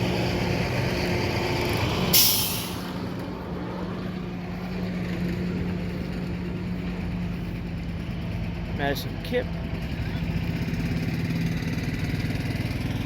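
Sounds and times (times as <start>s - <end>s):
engine hum: 0.0s - 13.0s
air hissing out: 2.1s - 3.0s.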